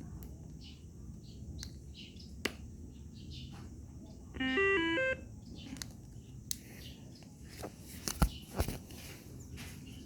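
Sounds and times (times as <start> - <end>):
handheld radio electronic beeps: 4.4 - 5.3.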